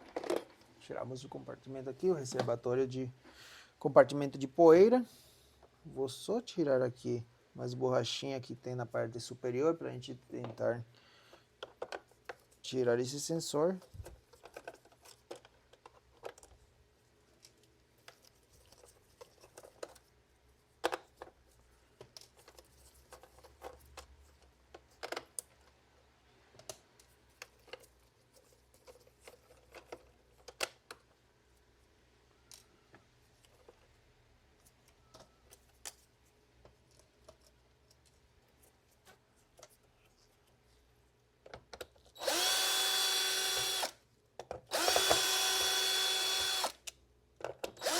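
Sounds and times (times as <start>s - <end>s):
plastic parts clicking and tapping: 11.3s - 12.5s, 13.8s - 16.6s, 20.8s - 21.4s, 22.0s - 25.8s, 26.5s - 31.2s, 41.4s - 42.2s, 44.4s - 45.8s, 46.4s - 47.9s
electric screwdriver running: 42.2s - 44.0s, 44.7s - 46.8s.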